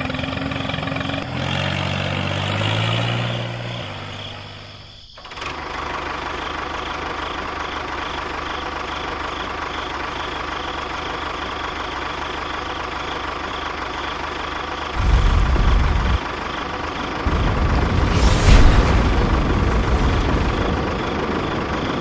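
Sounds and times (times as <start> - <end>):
low rumble: 15.0 - 22.0.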